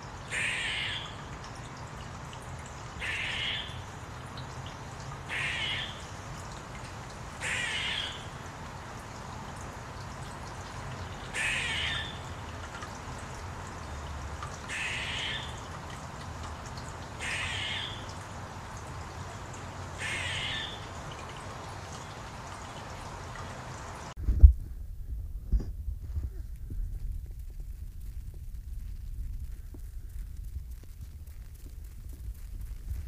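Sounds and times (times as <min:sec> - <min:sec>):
bird giving harsh calls: 0:05.3 - 0:06.0, 0:07.4 - 0:08.2, 0:11.4 - 0:12.2, 0:17.2 - 0:18.0, 0:20.0 - 0:20.8.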